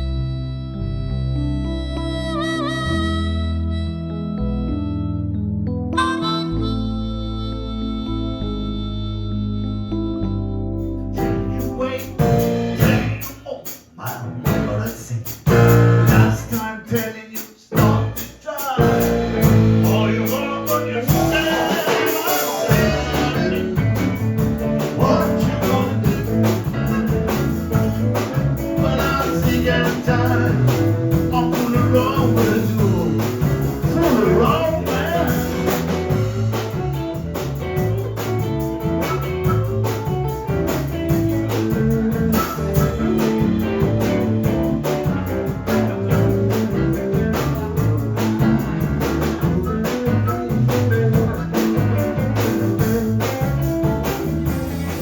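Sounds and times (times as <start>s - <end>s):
blues band playing: 0.0s - 55.0s
guitar: 0.0s - 55.0s
person singing: 11.2s - 36.7s.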